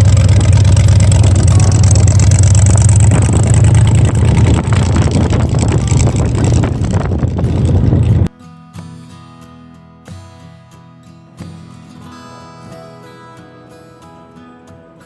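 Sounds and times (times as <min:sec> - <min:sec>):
car engine rumbling: 0:00.0 - 0:08.3.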